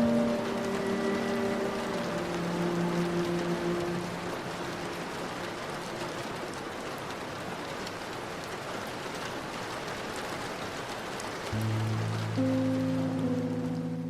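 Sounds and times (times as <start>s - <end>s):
low music chord: 0.0s - 5.1s, 11.6s - 14.0s
rain falling: 0.0s - 14.0s.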